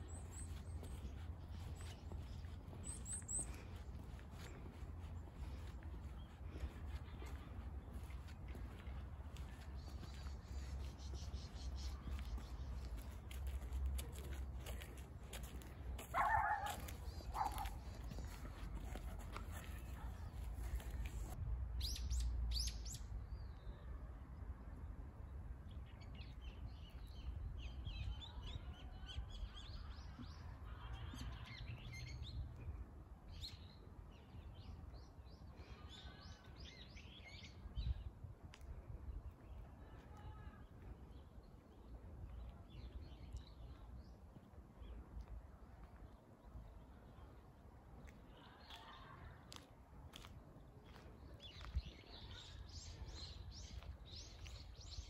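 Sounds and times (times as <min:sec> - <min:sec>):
small birds chirping and trilling: 0:00.0 - 0:13.6, 0:50.8 - 0:55.0.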